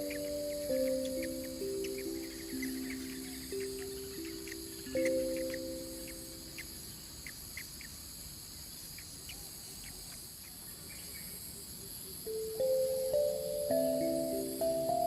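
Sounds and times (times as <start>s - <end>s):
held music chord: 0.0s - 6.7s, 12.3s - 15.0s
high-pitched insect drone: 0.0s - 7.9s, 12.2s - 15.0s
short insect chirps: 0.0s - 15.0s.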